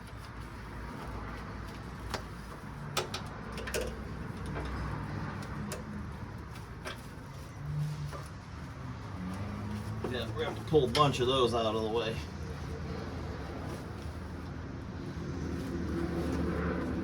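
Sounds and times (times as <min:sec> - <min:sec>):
metal tools clicking and knocking: 0:02.9 - 0:04.9.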